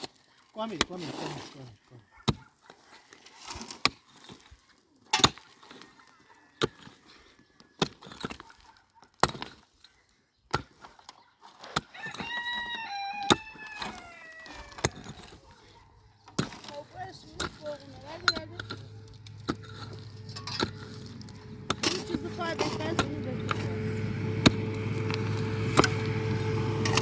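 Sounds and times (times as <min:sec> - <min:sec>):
heavy tool strikes: 0:18.4 - 0:27.0.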